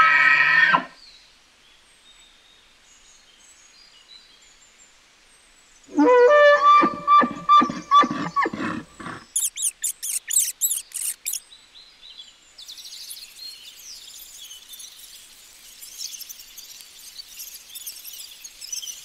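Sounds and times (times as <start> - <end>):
guinea pigs squealing: 7.2 - 11.4.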